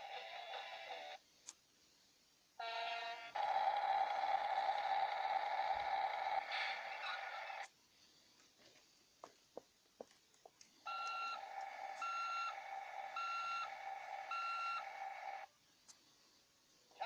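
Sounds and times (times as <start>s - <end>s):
electronic beeps: 10.9s - 15.5s.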